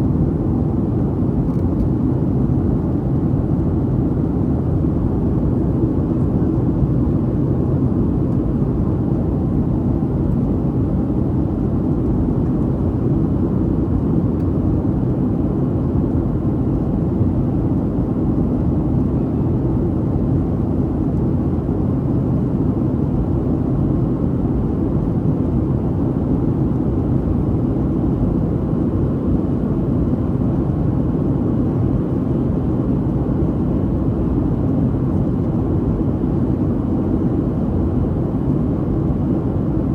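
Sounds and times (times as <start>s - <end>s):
airplane cabin drone: 0.0s - 39.9s.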